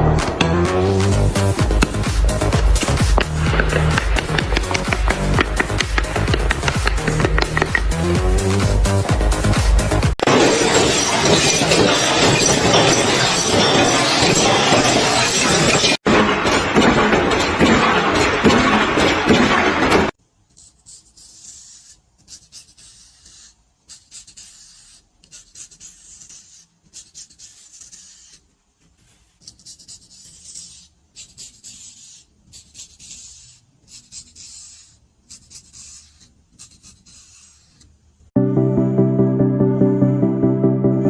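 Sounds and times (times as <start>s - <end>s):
scraping strokes: 1.3s - 15.8s.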